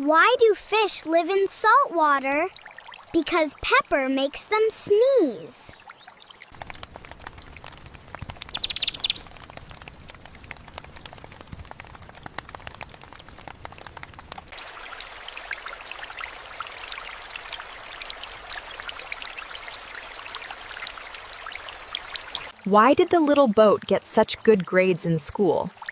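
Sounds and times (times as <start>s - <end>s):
rain pattering: 0.0s - 25.9s
fast chirping trill: 8.5s - 9.3s.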